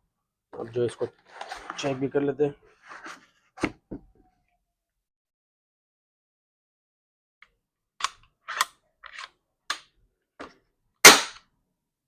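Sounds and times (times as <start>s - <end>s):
loud sharp crack: 11.0s - 11.4s.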